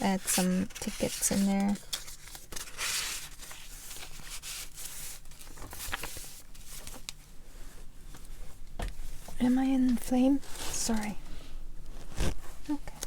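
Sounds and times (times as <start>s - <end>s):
paper rustling: 0.0s - 7.2s.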